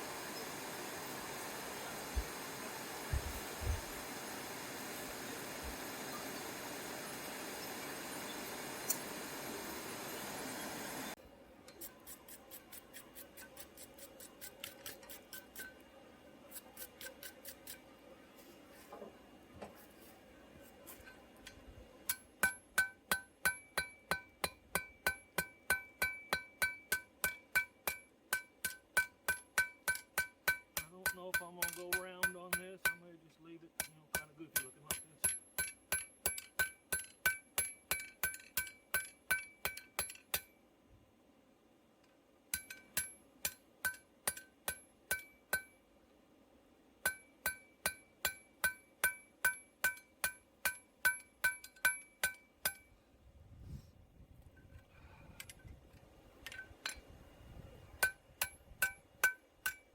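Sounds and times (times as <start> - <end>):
hammer striking steel: 22.1 - 33.1, 33.8 - 40.5, 42.5 - 45.8, 47.0 - 52.9, 58.0 - 59.9.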